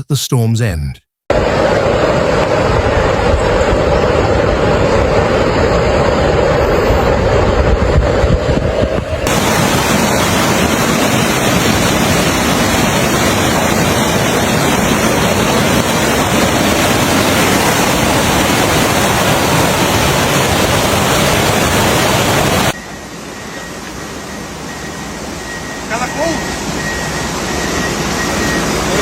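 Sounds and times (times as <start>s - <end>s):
rushing water: 8.0s - 22.8s.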